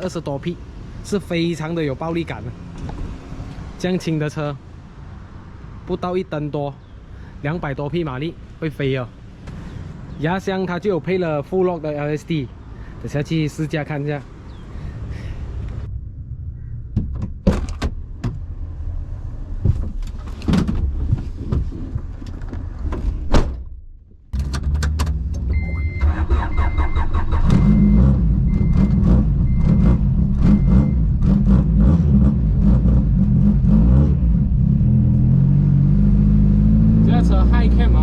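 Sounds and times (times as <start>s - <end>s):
car engine starting and idling: 24.3s - 33.6s.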